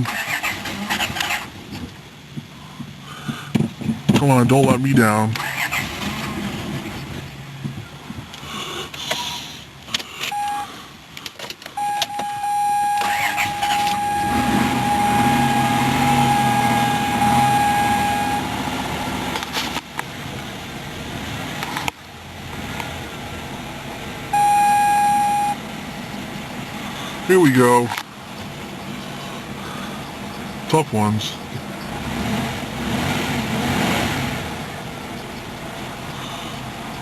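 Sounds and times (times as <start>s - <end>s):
car engine cranking: 0.0s - 22.9s
high warning tone: 10.3s - 10.8s, 11.8s - 19.4s, 24.3s - 25.6s.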